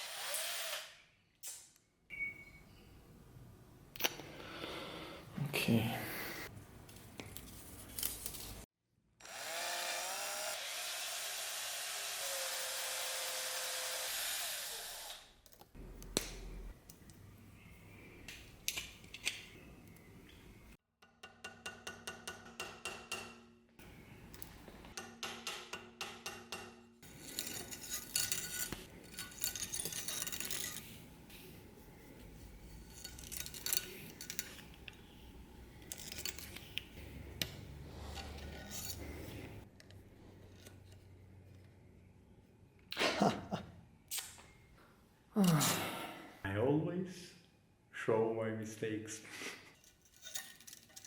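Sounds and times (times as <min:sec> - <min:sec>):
small power tool running: 0:09.2 - 0:15.3.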